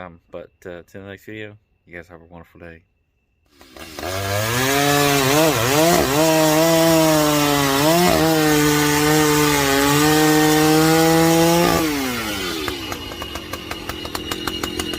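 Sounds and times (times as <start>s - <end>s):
chainsaw engine revving and idling: 3.5s - 14.9s.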